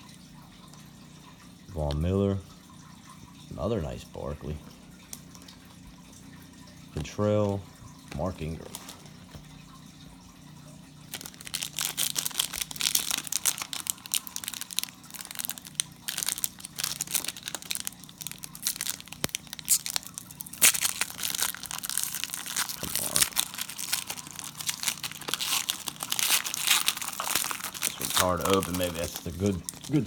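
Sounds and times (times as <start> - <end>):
foil wrapper crinkling and tearing: 8.6 - 9.2, 11.1 - 30.0.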